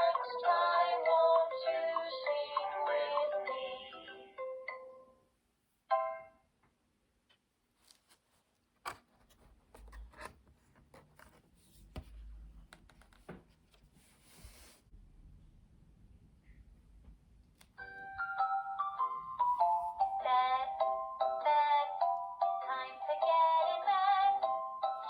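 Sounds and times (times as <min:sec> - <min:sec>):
book handling clicks and rubbing: 0:07.8 - 0:14.8.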